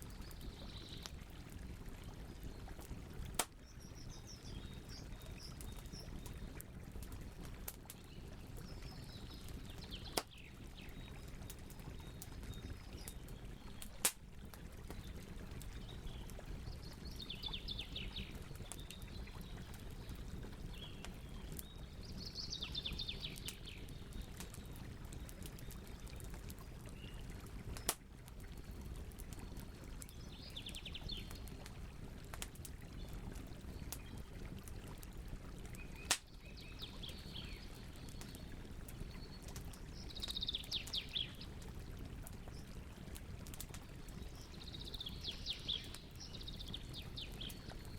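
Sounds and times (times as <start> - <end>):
fire popping: 0.0 - 17.2, 23.2 - 30.2, 31.1 - 36.3
campfire crackling: 0.0 - 47.9.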